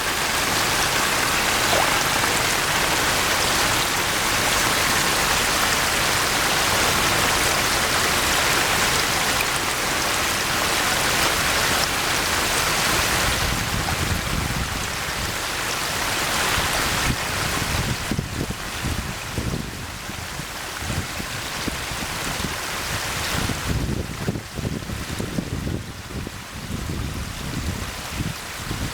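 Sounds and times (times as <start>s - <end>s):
heavy rain falling: 0.0s - 18.2s.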